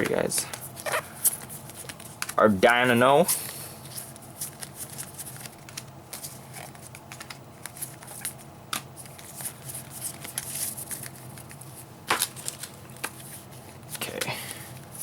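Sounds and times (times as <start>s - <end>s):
trading cards rustling: 0.0s - 15.0s.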